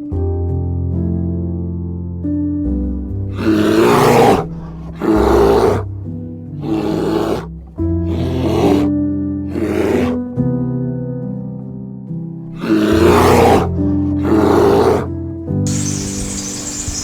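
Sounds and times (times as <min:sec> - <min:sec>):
animal rough breathy calls: 0:03.3 - 0:05.9, 0:06.6 - 0:08.9, 0:09.5 - 0:10.2, 0:12.5 - 0:17.0
background music sustained notes: 0:15.7 - 0:17.0.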